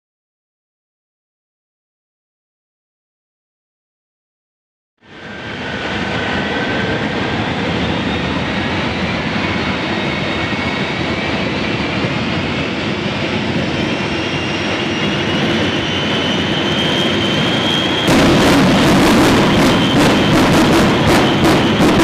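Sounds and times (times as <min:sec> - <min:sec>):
high whistling whine: 0:05.0 - 0:22.0
jet engine roaring: 0:05.0 - 0:22.0.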